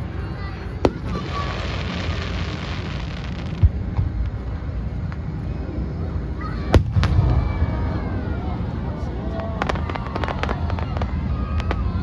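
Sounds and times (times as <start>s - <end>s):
faint fireworks pops: 0.0s - 5.5s, 6.4s - 7.9s, 9.3s - 12.0s
fireworks crackling: 0.0s - 12.0s
steady low rumble: 0.0s - 12.0s
dull boom: 6.6s - 8.2s.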